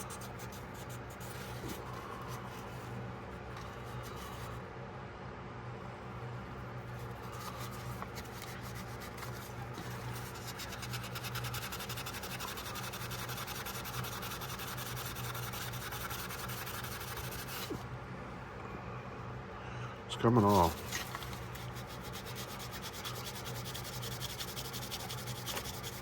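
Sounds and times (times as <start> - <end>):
sandpaper scratching on steel: 7.3 - 17.8, 20.5 - 26.0.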